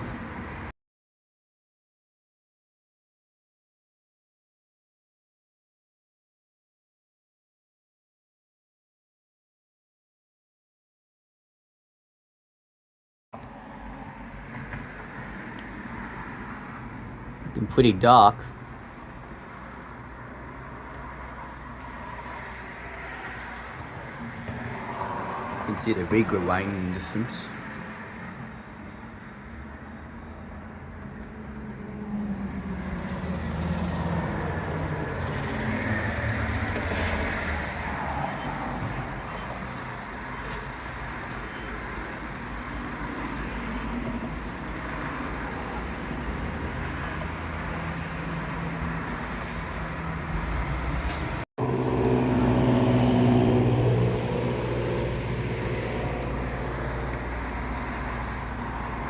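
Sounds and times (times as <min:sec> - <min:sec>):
vehicle engines passing: 0:00.0 - 0:00.7, 0:13.4 - 0:59.0
heavy vehicle engine humming: 0:13.5 - 0:59.0.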